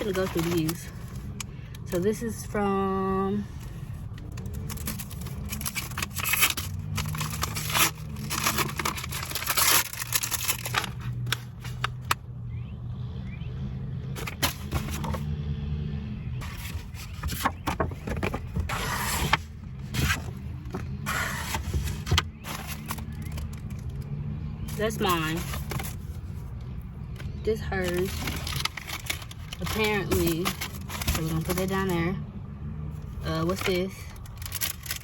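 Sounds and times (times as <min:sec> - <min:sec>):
papers rustling and crinkling: 0:00.0 - 0:01.5, 0:03.5 - 0:12.2, 0:14.2 - 0:15.2, 0:16.4 - 0:24.0, 0:24.7 - 0:26.5, 0:27.1 - 0:31.9, 0:33.0 - 0:35.0.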